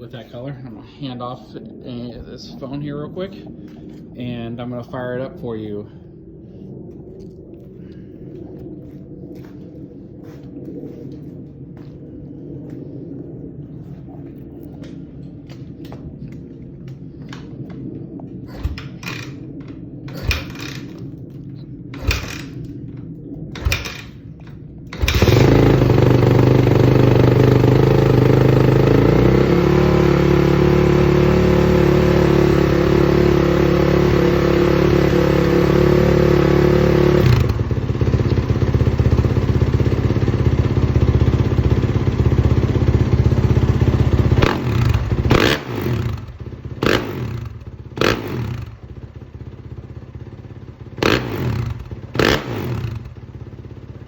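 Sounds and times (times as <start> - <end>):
motorcycle engine idling and revving: 14.8 - 54.0
motorcycle engine kick-starting: 18.5 - 21.3, 21.9 - 22.9, 23.5 - 54.0.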